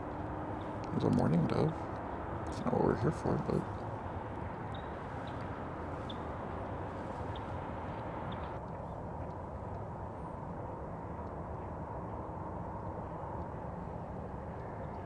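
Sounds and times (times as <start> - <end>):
road traffic rumble: 0.0 - 8.6.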